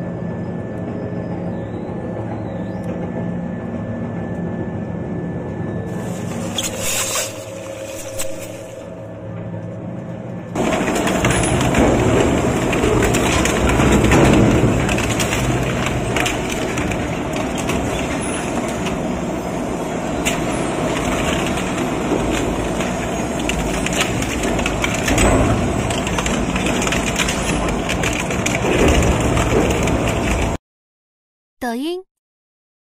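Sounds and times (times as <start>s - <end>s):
shredder grinding material: 10.6s - 30.5s.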